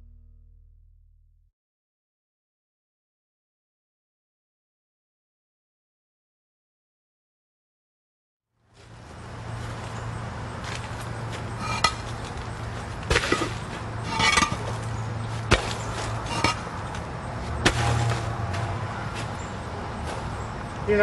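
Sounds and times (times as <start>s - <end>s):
low hum: 0.0s - 1.4s
cinder blocks knocking and scraping: 11.4s - 18.7s.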